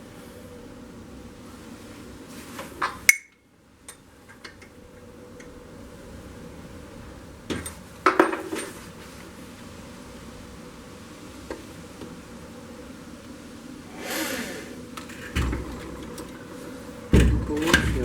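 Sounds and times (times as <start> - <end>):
steady low hum: 9.4 - 18.0.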